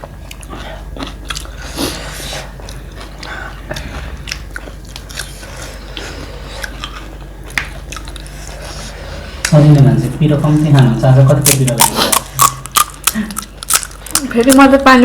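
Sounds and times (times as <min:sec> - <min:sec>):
person chewing crunchy snacks: 0:00.1 - 0:09.6, 0:11.4 - 0:14.8.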